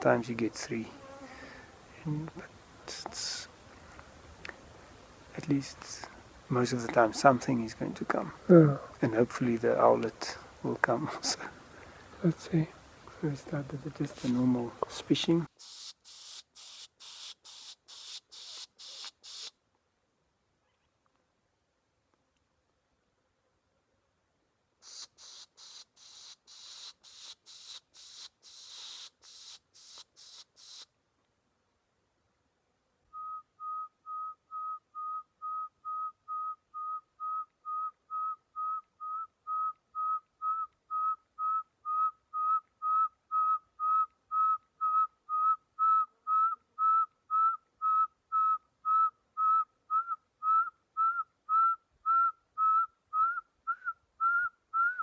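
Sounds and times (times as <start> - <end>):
man pishing hissing bursts: 15.5 - 19.6, 24.8 - 30.9
man whistling owl call: 33.1 - 55.0.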